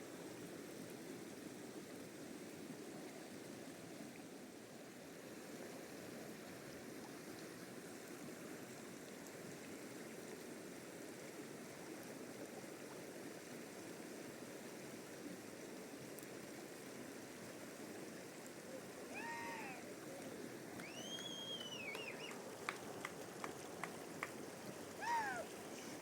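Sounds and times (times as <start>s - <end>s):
river water rushing: 16.9s - 26.0s.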